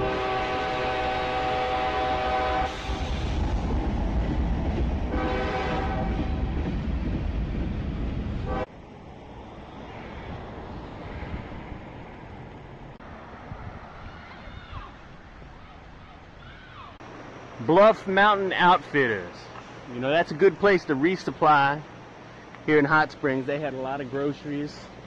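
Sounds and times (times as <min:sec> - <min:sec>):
multi-tone train horn: 0:00.0 - 0:03.0, 0:05.1 - 0:06.5, 0:08.4 - 0:08.7
train passing with heavy rumble: 0:00.0 - 0:25.0
quiet outdoor background: 0:06.9 - 0:25.0.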